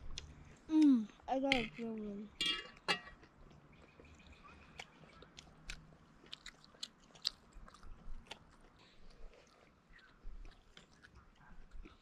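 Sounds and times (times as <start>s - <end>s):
person chewing food: 2.8s - 12.0s.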